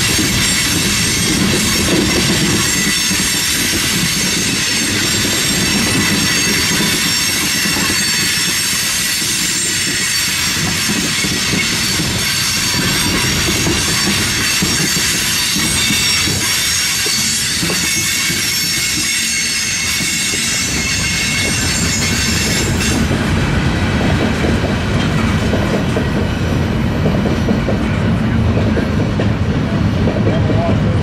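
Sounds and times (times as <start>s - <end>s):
train wheels rumbling on rail: 0.0s - 31.0s
high-pitched wheel squeal: 13.9s - 23.0s.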